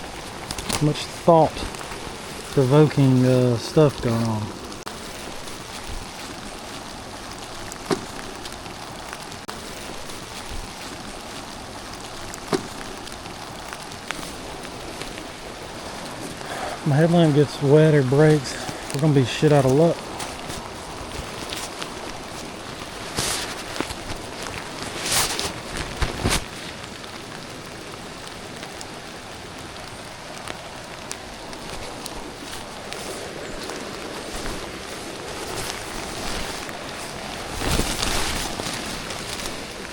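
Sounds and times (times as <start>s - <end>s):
rustles and knocks: 0.0s - 16.4s, 18.4s - 26.8s, 30.5s - 39.9s
steady rain hiss: 0.0s - 39.9s.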